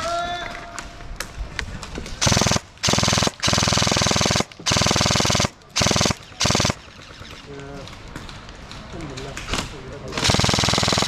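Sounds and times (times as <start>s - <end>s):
airsoft gun firing bursts: 2.2s - 7.5s, 10.2s - 11.0s.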